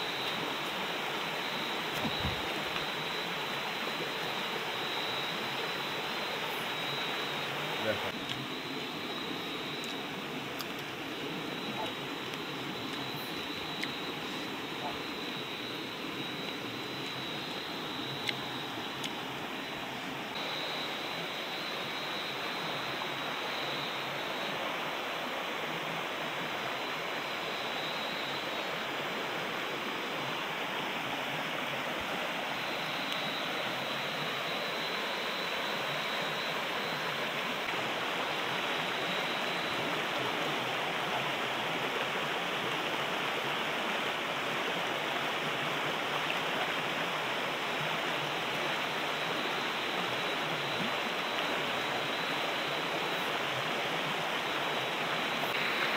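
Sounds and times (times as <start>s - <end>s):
water rushing: 0.0s - 55.9s.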